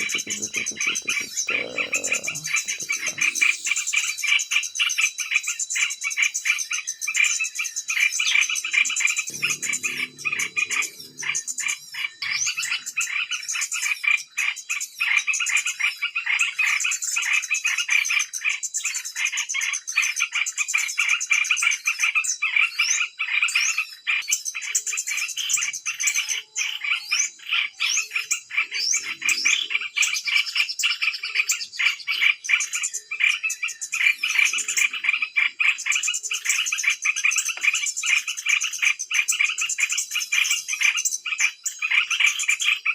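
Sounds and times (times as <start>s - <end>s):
many small birds twittering: 0.0s - 42.9s.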